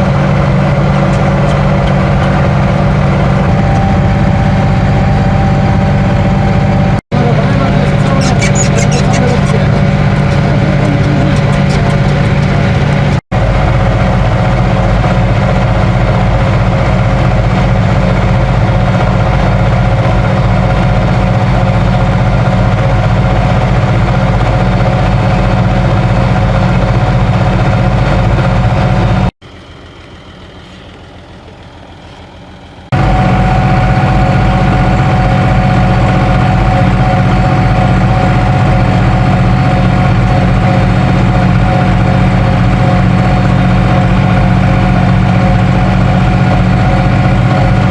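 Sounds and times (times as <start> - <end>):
diesel tractor engine running: 0.0 - 47.9.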